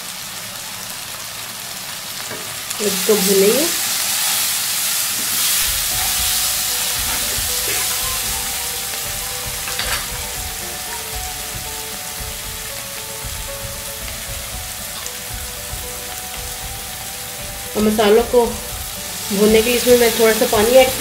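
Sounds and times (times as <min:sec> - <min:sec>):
masala sizzling in oil: 0:00.0 - 0:21.0.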